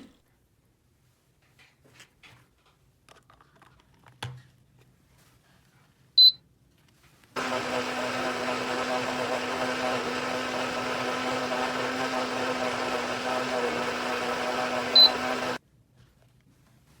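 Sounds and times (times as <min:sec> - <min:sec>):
small electric motor buzzing: 0:07.4 - 0:15.6.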